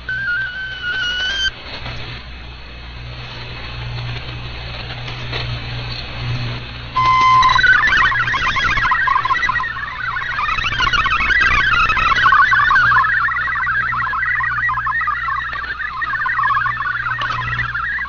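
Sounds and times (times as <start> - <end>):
warbling digital data tones: 0.0 - 1.5, 7.0 - 18.0
radio static and hum: 0.0 - 18.0.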